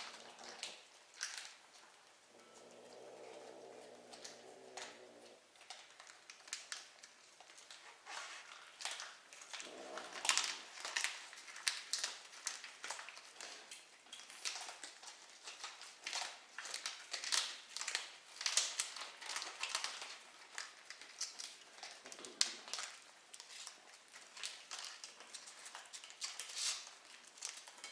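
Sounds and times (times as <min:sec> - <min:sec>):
kitten mewing: 0:02.4 - 0:05.4.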